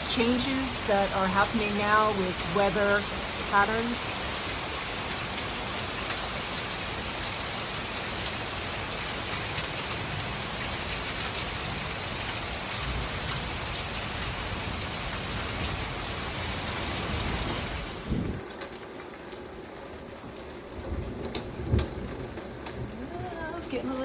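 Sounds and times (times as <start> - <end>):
low thunder rumble: 0.0 - 18.5
heavy rain pouring: 0.0 - 24.0.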